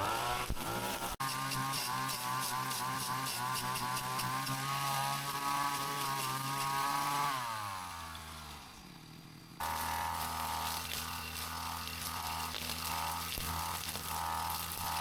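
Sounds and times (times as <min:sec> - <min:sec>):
brush cutter engine running: 0:00.0 - 0:15.0.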